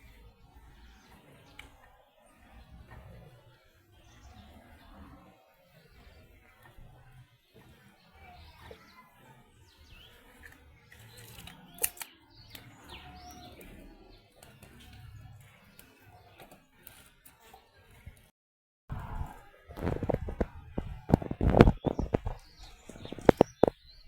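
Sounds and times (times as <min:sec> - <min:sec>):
faint bird chirps: 0:00.0 - 0:18.0
sharp click: 0:11.3 - 0:12.7.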